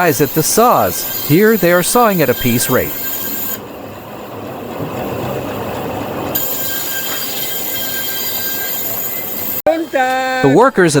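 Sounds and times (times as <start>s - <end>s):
band saw cutting log: 0.0s - 3.6s, 6.3s - 10.1s.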